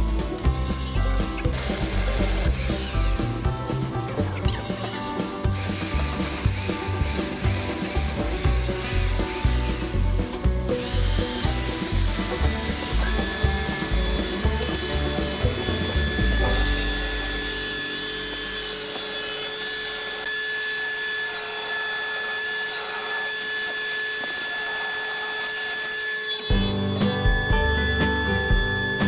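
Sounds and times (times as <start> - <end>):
background music: 0.0 - 19.3, 26.5 - 29.0
electric chainsaw cutting wood: 0.0 - 29.0.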